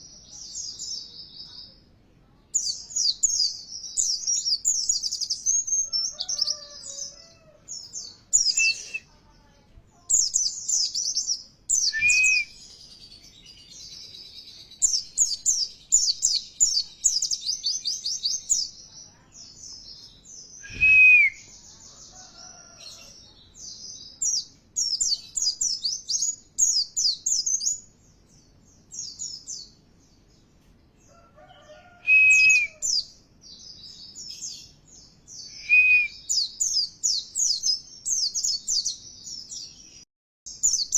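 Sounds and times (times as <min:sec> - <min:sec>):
bird twittering song: 0:02.5 - 0:40.9
low whistled bird notes: 0:11.7 - 0:12.7, 0:20.6 - 0:21.5.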